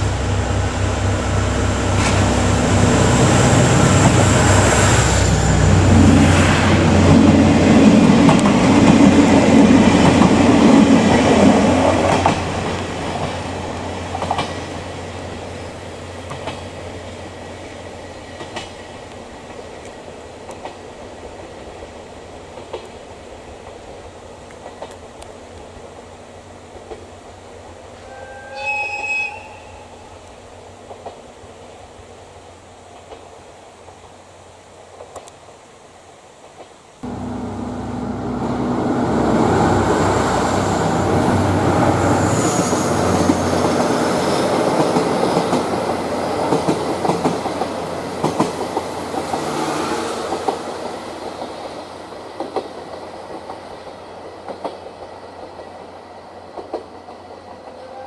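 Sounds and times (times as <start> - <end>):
diesel train passing: 0.0 - 35.3, 37.0 - 58.0
wheels clicking over rail joints: 7.1 - 28.1, 43.1 - 49.6.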